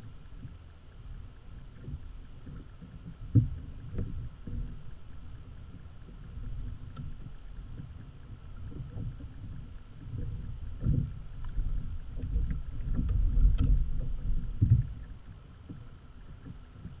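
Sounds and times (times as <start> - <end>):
wind buffeting on microphone: 1.7 - 15.4
water sloshing against kayak hull: 1.7 - 17.0.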